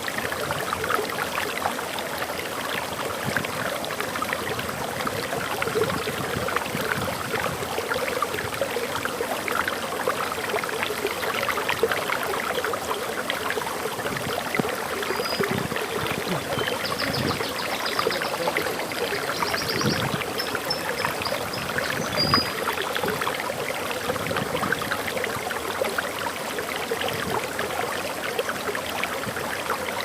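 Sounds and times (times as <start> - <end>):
waterfall rushing: 9.1 - 29.9.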